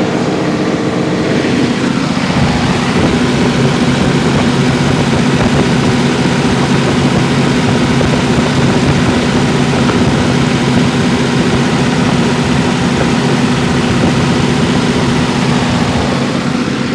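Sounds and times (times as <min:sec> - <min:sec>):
diesel generator droning: 0:00.0 - 0:16.9.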